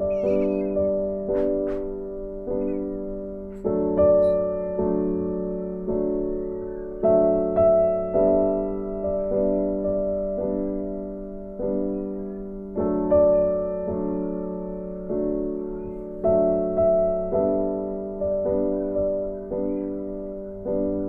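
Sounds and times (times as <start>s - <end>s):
slow gentle piano music: 0.0s - 21.0s.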